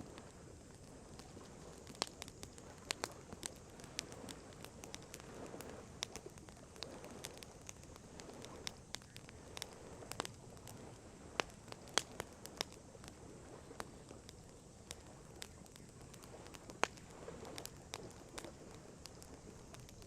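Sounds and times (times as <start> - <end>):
campfire crackling: 0.0 - 20.0
sharp pops from fire: 0.0 - 20.0.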